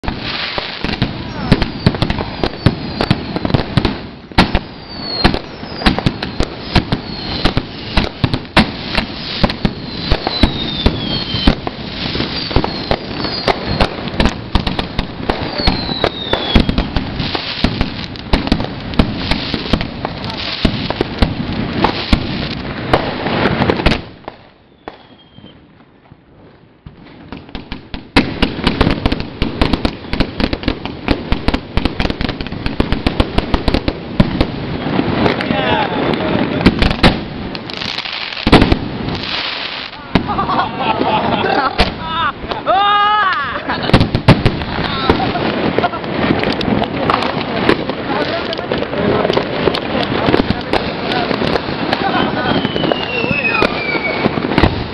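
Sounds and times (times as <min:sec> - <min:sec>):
falling fireworks whistles: 0:00.0 - 0:21.0, 0:21.8 - 0:25.7, 0:51.2 - 0:54.9
fireworks bangs and crackles: 0:00.0 - 0:54.9.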